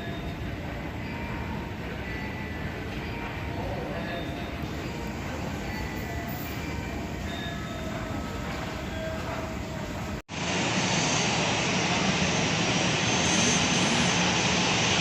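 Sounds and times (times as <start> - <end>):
jet engines rushing: 10.3 - 15.0.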